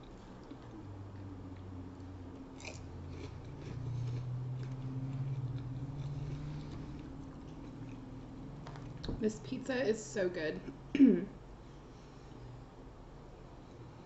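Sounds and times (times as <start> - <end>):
chewing and biting food: 0.0 - 9.1
low steady hum: 0.0 - 14.0.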